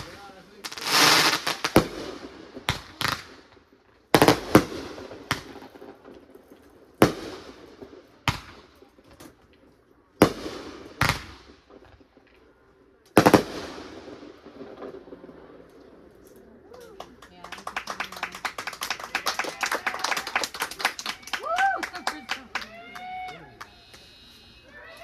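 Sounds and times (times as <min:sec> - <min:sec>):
fireworks bangs with echo: 0:00.0 - 0:16.2.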